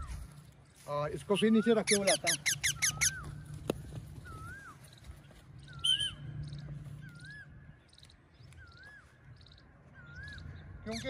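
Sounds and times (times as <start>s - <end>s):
sharp high bird chirp: 1.3s - 3.5s, 5.6s - 11.0s
bird whistled call: 1.4s - 5.0s, 5.6s - 7.6s, 8.4s - 11.0s.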